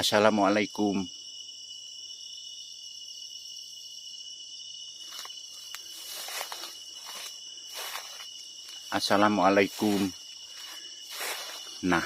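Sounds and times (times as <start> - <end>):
crickets and insects chirring: 0.0 - 12.0
rustling noises: 5.0 - 12.0.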